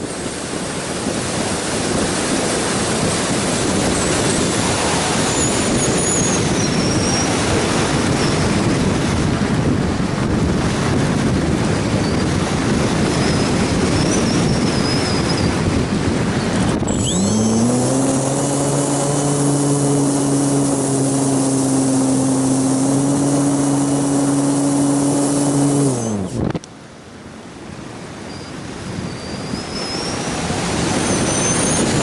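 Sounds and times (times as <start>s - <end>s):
wind buffeting microphone: 0.0s - 32.0s
faint high thin whistles: 28.3s - 30.4s, 31.0s - 31.9s.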